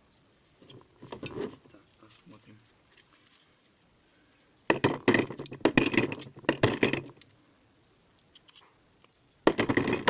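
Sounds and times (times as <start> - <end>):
metal parts and tools clinking: 4.7 - 7.4, 8.3 - 10.0.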